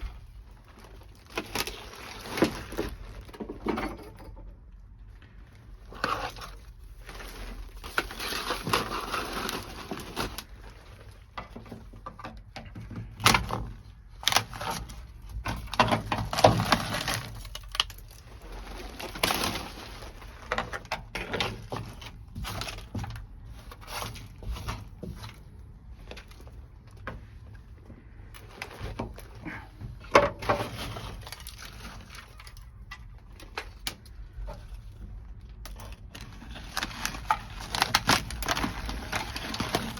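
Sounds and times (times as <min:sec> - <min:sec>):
knocks and cracks of brittle mat: 0:05.9 - 0:18.2, 0:18.9 - 0:27.4, 0:35.5 - 0:39.9.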